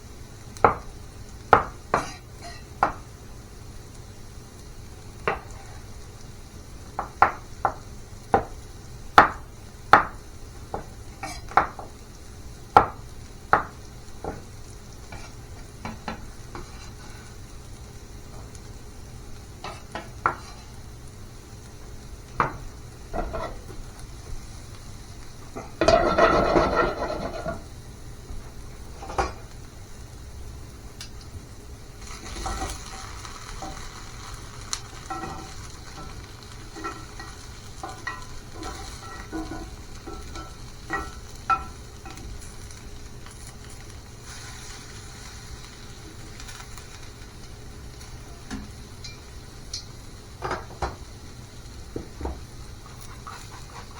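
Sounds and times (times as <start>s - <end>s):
food sizzling in a pan: 0.0s - 53.9s
utensil stirring: 32.0s - 45.6s, 52.8s - 53.9s.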